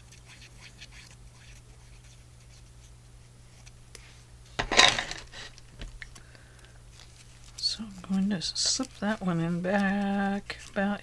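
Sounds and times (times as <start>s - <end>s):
paper rustling and scraping: 4.6s - 5.5s
paper crinkle: 6.9s - 11.0s.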